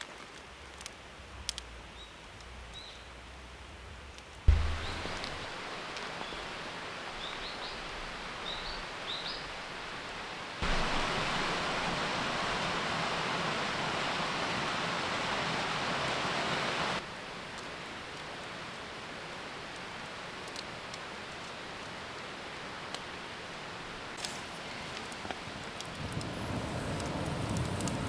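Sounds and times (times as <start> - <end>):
steady outdoor hiss: 0.0 - 28.0
loud even hiss: 4.5 - 9.4, 10.6 - 17.0.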